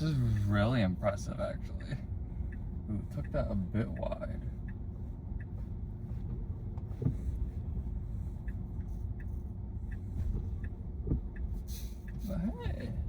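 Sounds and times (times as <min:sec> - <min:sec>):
road and tyre noise in car cabin: 0:00.0 - 0:13.0
faint small ticks: 0:08.4 - 0:12.3.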